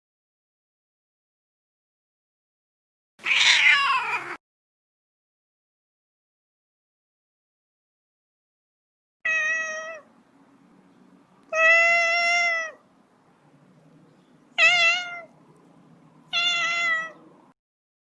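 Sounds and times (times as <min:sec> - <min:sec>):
cat meowing: 0:03.2 - 0:04.4, 0:09.3 - 0:10.1, 0:11.5 - 0:12.8, 0:14.6 - 0:15.3, 0:16.3 - 0:17.2
faint low hum: 0:12.3 - 0:17.5.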